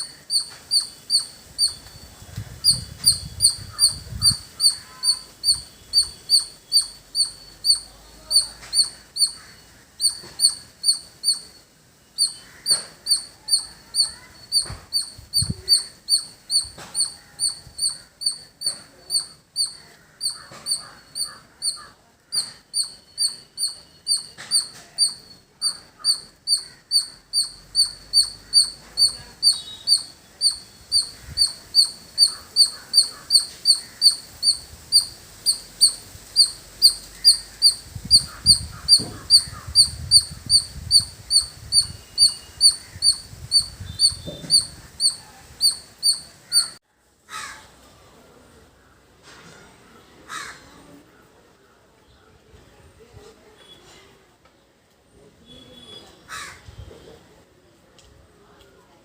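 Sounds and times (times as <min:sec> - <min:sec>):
squirrel chirping: 0:00.0 - 0:46.8.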